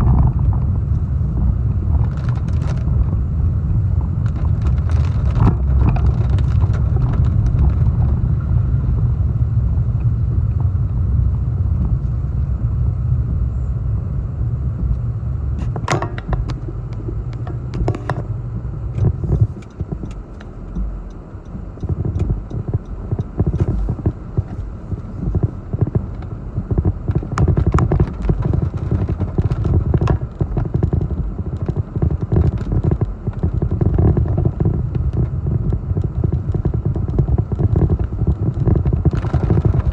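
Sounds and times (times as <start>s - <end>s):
gusty wind buffeting microphone: 0.0s - 39.9s
sharp knocks and rattles: 15.6s - 18.3s.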